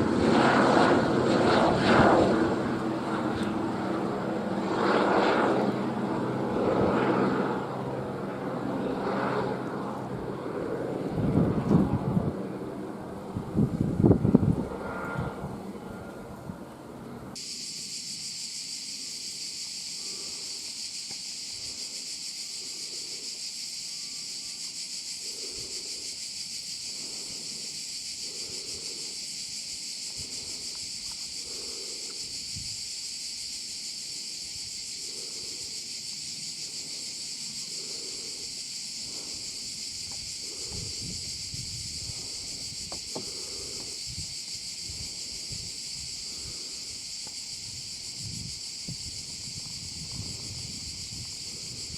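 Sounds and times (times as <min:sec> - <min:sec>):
insects buzzing: 0:00.0 - 0:51.9.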